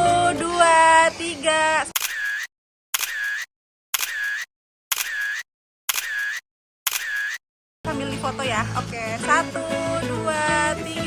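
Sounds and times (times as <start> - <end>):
camera shutter clicks: 2.0 - 7.4.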